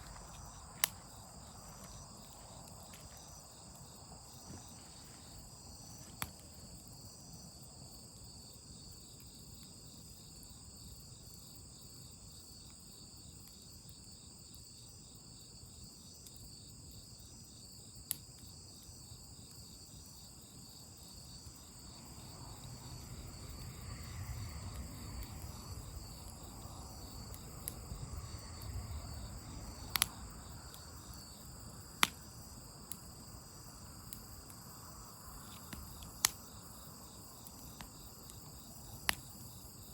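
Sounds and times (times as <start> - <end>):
campfire crackling pops: 0.0 - 7.5, 18.0 - 39.9
crickets chirring: 0.0 - 39.9.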